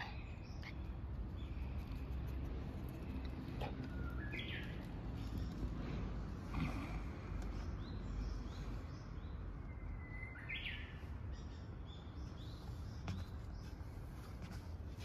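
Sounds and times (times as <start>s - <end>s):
low background rumble: 0.0s - 10.0s
songbirds chirping: 0.0s - 15.0s.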